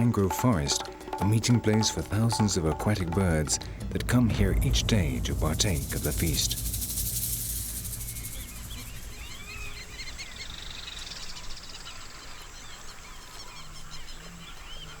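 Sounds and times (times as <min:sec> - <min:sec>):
flock of birds chirping: 0:05.3 - 0:15.0
buzzy bird trill: 0:05.6 - 0:12.7.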